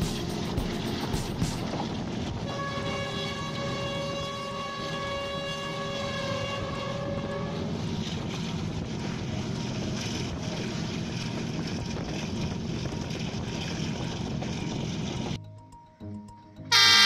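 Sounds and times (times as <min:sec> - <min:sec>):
train rumbling and rattling on rails: 0:00.0 - 0:15.4
train horn long note: 0:02.2 - 0:07.8, 0:16.7 - 0:17.0.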